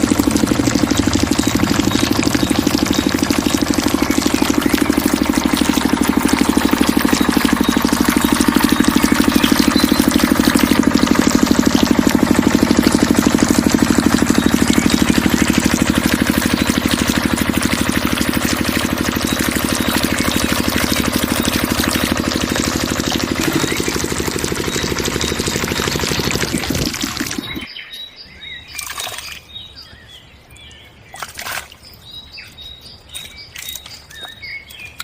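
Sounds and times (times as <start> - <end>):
small engine idling: 0.0 - 27.7.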